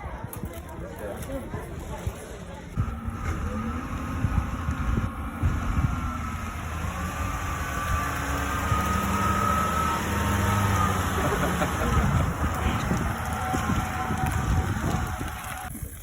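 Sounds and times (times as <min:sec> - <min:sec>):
wind gusts on microphone: 0:01.4 - 0:09.5, 0:11.7 - 0:16.0
motor humming and whining: 0:02.8 - 0:16.0.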